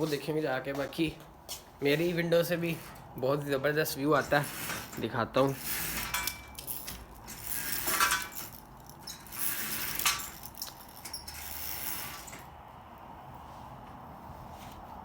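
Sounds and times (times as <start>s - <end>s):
mechanical scrapes: 4.2s - 10.6s, 11.2s - 12.4s
sharp clicks and rattles: 5.9s - 12.4s.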